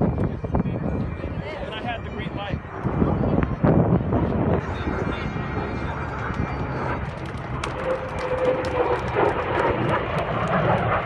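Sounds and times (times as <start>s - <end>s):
aircraft engine running: 0.0s - 11.0s.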